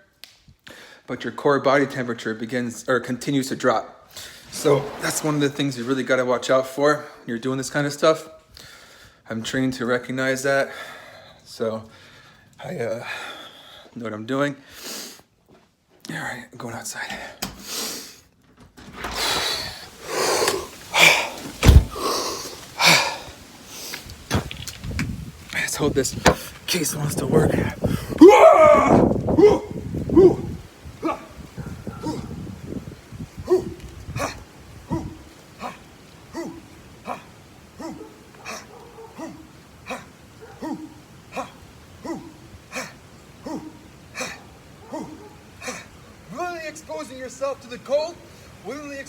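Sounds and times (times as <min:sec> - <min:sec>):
person breathing hard: 0:19.2 - 0:24.0, 0:27.8 - 0:28.2
loud thump: 0:21.6 - 0:22.1
dog barking: 0:31.0 - 0:32.3, 0:33.5 - 0:35.2, 0:37.8 - 0:41.0, 0:43.4 - 0:45.5.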